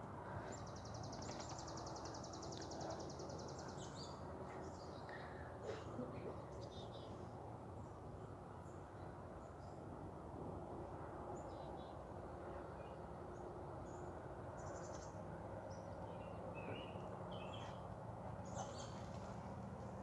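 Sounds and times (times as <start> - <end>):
steady low background noise: 0.0 - 20.0
small birds chirping: 0.4 - 5.8, 13.8 - 19.4.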